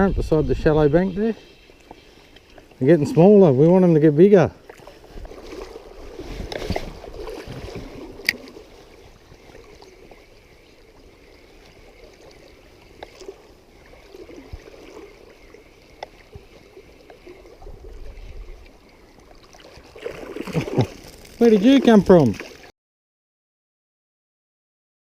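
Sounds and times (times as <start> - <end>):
shallow stream running: 0.0 - 22.7.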